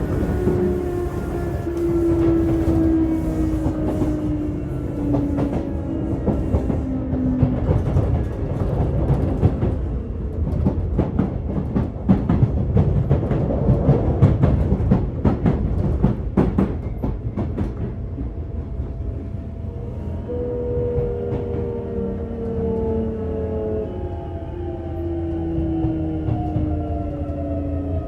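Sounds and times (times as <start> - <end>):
electric train rumble: 0.0 - 28.0.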